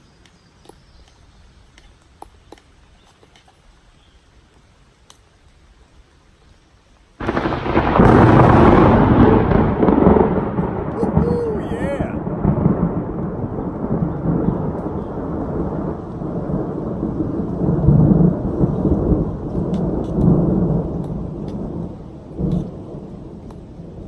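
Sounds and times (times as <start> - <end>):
light rain pattering: 0.0 - 24.0
thunder rumbling: 7.2 - 24.0.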